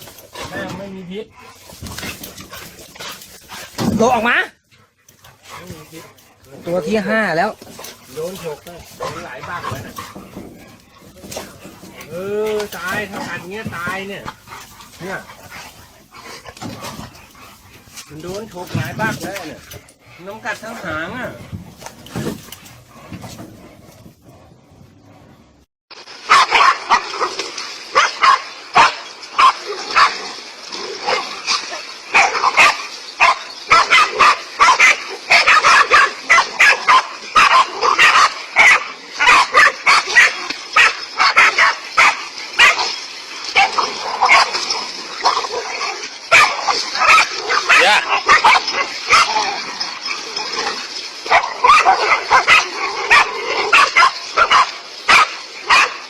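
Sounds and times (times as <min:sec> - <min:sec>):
dog barking rapidly: 0:07.7 - 0:10.5, 0:26.2 - 0:30.2, 0:31.0 - 0:42.9, 0:43.5 - 0:49.7, 0:50.4 - 0:56.0.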